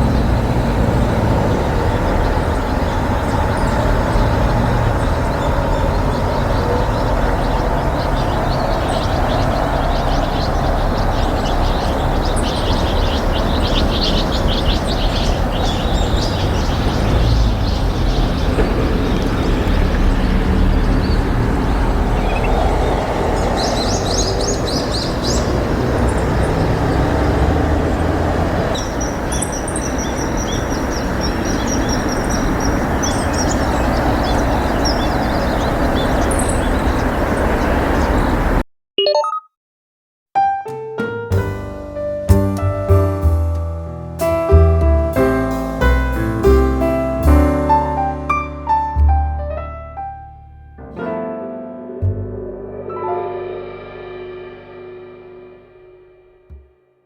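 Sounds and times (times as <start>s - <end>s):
small birds chirping: 0.0s - 38.6s.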